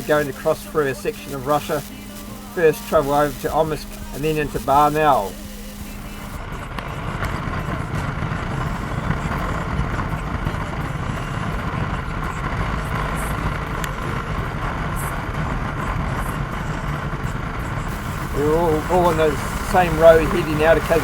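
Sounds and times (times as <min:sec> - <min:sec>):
motorcycle engine running: 0:00.0 - 0:21.0
road noise: 0:05.0 - 0:21.0.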